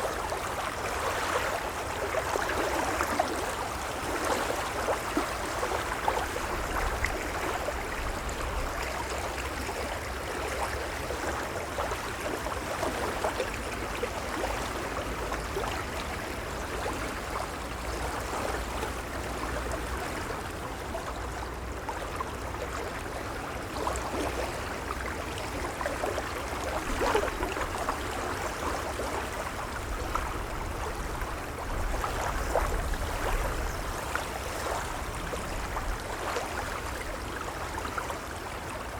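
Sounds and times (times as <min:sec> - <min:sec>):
waves lapping: 0:23.8 - 0:38.9.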